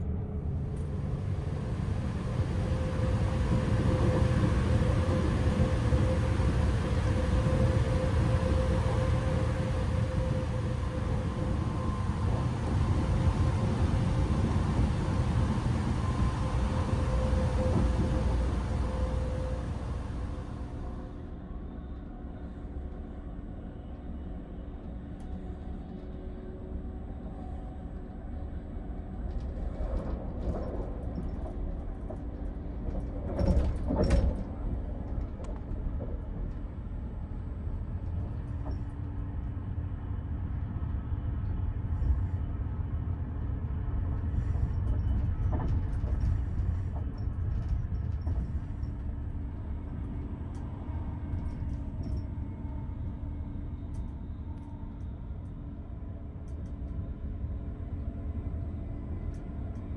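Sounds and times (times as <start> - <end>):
train wheels rumbling on rail: 0.0 - 21.3, 28.8 - 59.9
faint hum: 0.0 - 59.9
train clatters: 0.7 - 21.1, 29.2 - 39.8, 43.6 - 55.2.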